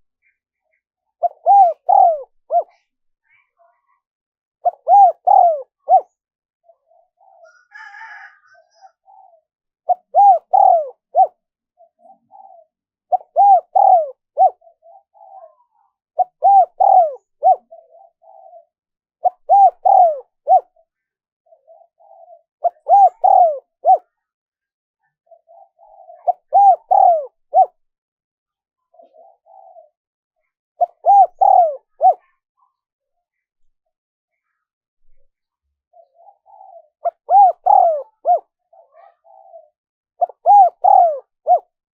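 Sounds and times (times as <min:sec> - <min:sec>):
dove cooing: 0:01.2 - 0:02.9, 0:04.6 - 0:20.8, 0:21.5 - 0:24.2, 0:25.2 - 0:27.8, 0:28.9 - 0:30.0, 0:30.8 - 0:32.4, 0:35.9 - 0:41.7.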